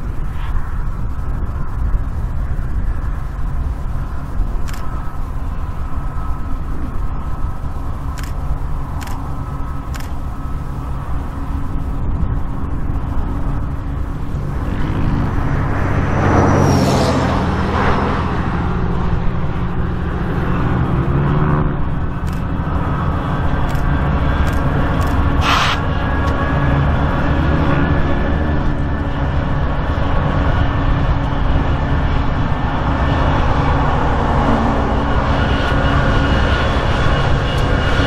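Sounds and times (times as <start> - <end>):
locomotive engine drone: 0.0 - 38.0
train wheels rumbling on rails: 0.0 - 38.0
brief hiss: 25.4 - 25.8.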